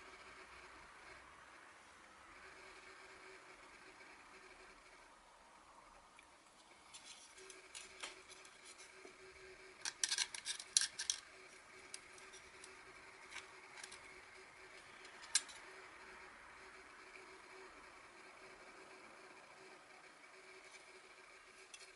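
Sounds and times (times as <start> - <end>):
metal plates clicking and clinking: 9.8 - 11.2.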